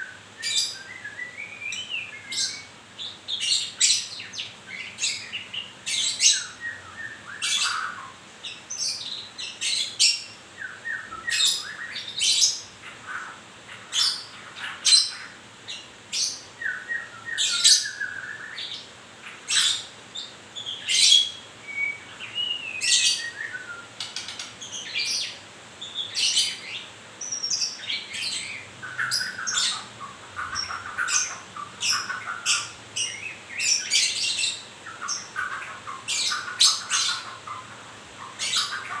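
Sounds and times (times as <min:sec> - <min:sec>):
bird chattering: 0:24.0 - 0:25.4, 0:26.0 - 0:39.0.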